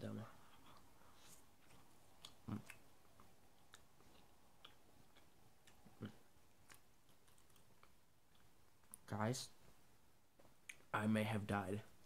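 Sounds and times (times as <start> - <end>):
faint chewing: 0.3 - 9.1
mouth clicks: 2.2 - 2.9.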